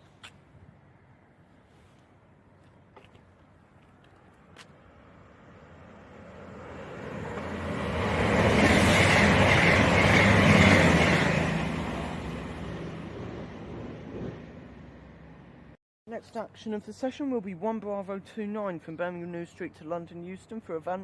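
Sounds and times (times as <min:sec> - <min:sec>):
diesel train passing at speed: 0:04.8 - 0:15.8.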